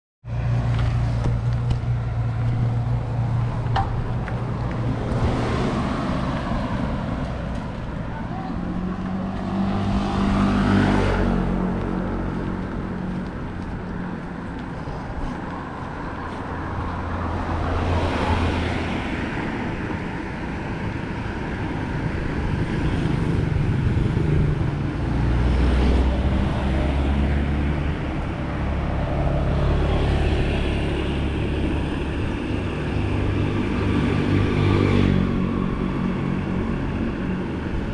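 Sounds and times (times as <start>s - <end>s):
low rumble of engines and tyres: 0.2s - 37.9s
motor vehicles passing: 0.3s - 37.9s.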